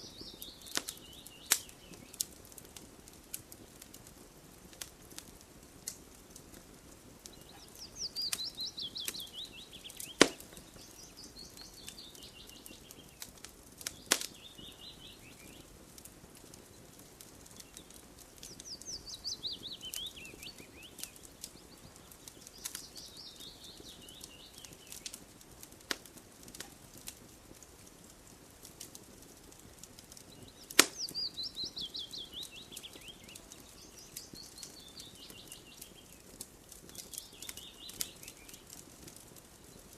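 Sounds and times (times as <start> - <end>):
songbird singing: 0.0 - 2.6, 7.2 - 15.8, 16.4 - 25.2, 30.1 - 39.9
burning wood popping: 0.0 - 39.9
campfire crackling: 0.0 - 39.9.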